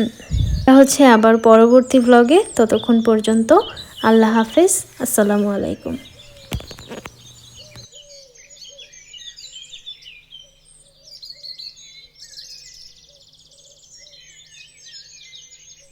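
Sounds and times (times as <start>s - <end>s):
bird rapid trill: 0.0s - 8.2s
birds chirping and singing: 0.0s - 15.9s.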